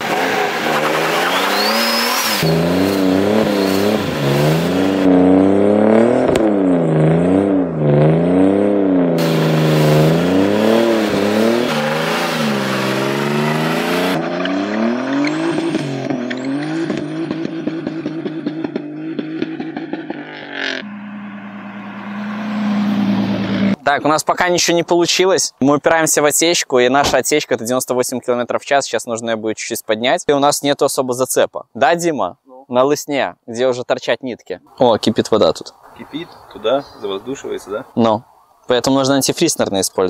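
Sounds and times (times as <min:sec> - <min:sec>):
car engine revving: 0:00.0 - 0:23.9
exhaust popping: 0:00.0 - 0:24.2.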